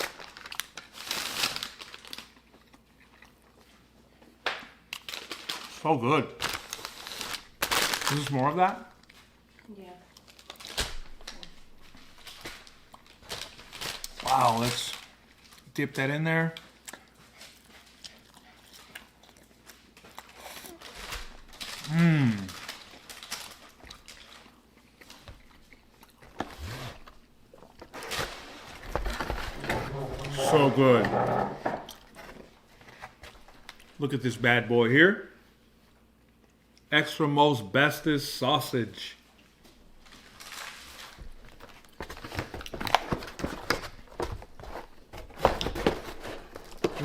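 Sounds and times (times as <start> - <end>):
person chewing food: 1.9 - 5.2, 11.7 - 14.1, 16.5 - 28.0, 31.2 - 34.0
person humming: 21.9 - 22.6.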